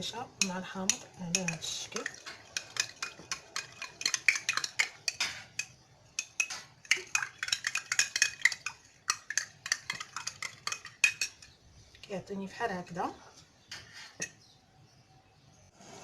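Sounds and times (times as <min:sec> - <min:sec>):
spoon clinking and scraping in glass: 0:00.4 - 0:11.6.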